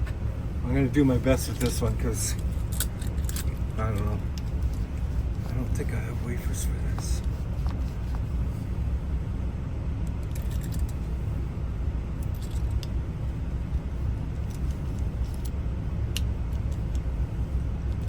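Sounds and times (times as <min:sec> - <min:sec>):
steady low rumble: 0:00.0 - 0:18.0
metallic clicks of lock parts: 0:01.6 - 0:04.1, 0:10.2 - 0:11.0, 0:12.2 - 0:12.9.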